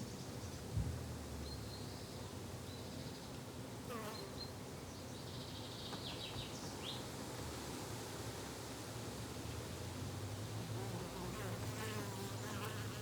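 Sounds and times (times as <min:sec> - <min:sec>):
insects buzzing: 0:10.8 - 0:13.0.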